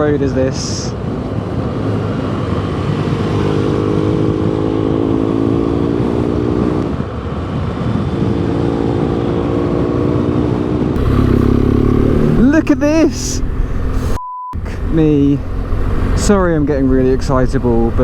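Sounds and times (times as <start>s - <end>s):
motorcycle engine running: 11.0s - 18.0s.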